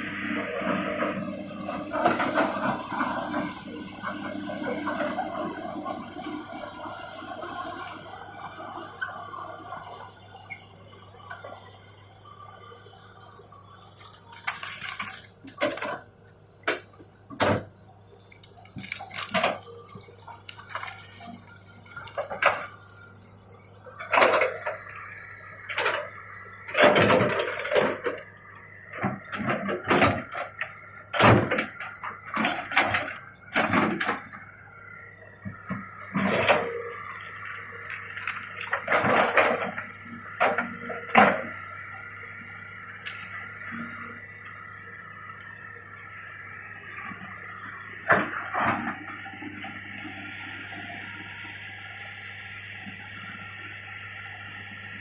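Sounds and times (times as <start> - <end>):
excavator engine hum: 0.0 - 55.0.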